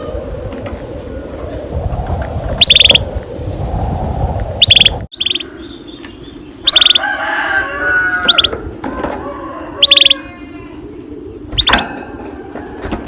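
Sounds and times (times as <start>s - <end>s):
canaries singing: 0.0s - 13.0s.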